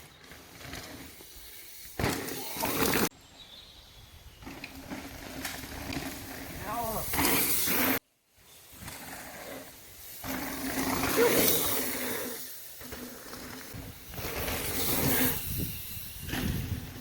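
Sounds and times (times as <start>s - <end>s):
rushing wind: 13.7s - 17.0s.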